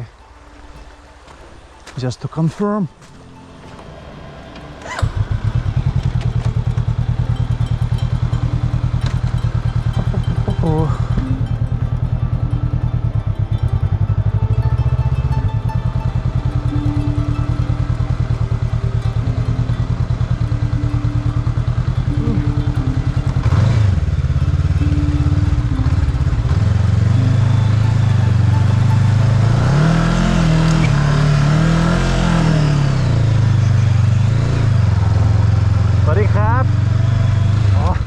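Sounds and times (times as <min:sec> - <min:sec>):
motorbike engine revving: 0:03.3 - 0:38.0.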